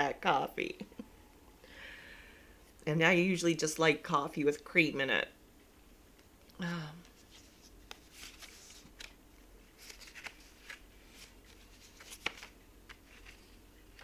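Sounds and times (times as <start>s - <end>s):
paper rustling: 7.2s - 14.0s.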